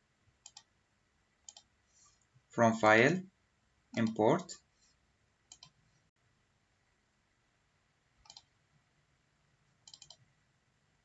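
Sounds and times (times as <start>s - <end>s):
computer mouse clicks: 0.4s - 0.7s, 1.4s - 1.7s, 5.5s - 5.8s, 8.2s - 8.5s, 9.8s - 10.3s.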